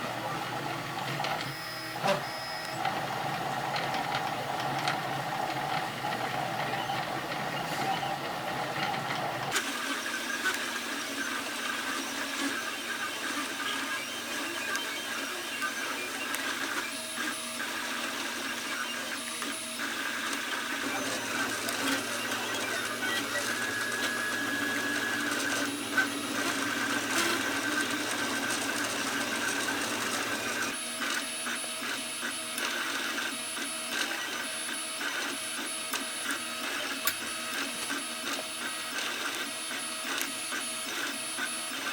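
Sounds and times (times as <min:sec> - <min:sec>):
stepper motors whining: 0:10.4 - 0:30.9.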